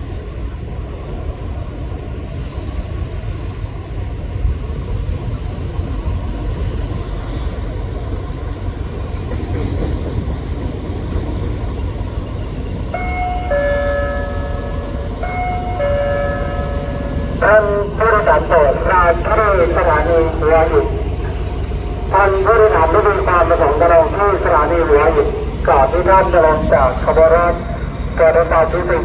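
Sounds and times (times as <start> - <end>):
diesel locomotive engine rumbling: 0.0 - 29.0
two-note station chime: 13.0 - 17.4.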